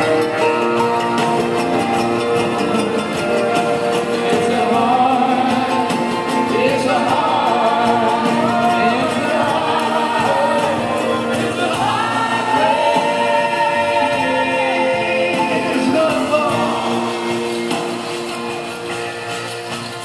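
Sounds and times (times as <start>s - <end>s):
live band music: 0.0s - 20.0s
sliding melody lines: 0.0s - 20.0s.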